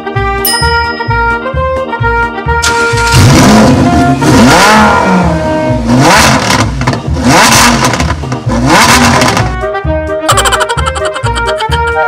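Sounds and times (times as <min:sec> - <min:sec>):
sports car engine revving: 0:02.6 - 0:09.6.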